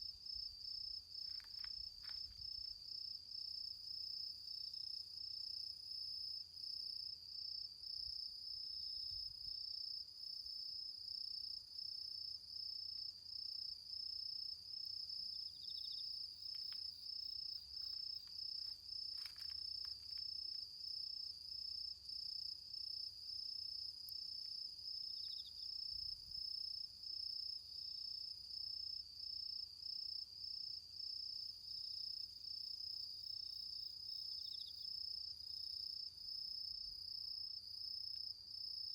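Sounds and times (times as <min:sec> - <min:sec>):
faint insect chirps: 0:00.0 - 0:38.9
crickets trilling: 0:14.2 - 0:30.3.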